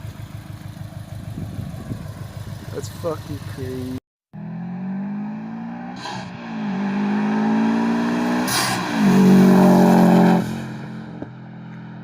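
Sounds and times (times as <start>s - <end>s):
car engine accelerating hard: 4.4s - 12.0s.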